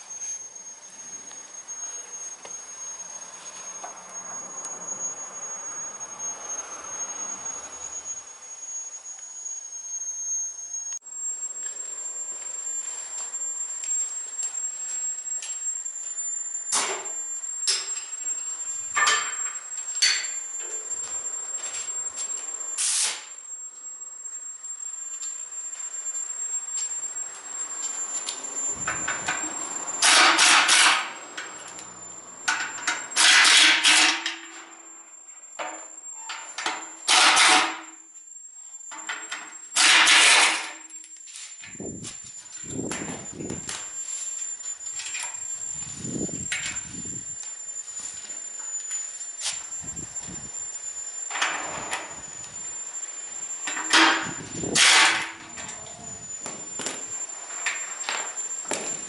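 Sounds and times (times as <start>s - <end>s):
impact wrench bursts: 28.8s - 34.4s, 53.4s - 55.8s.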